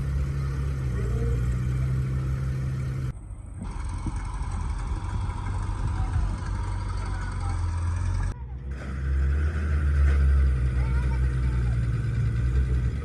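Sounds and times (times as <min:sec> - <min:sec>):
engine humming: 0:00.0 - 0:13.0
rough engine sound: 0:00.0 - 0:13.0.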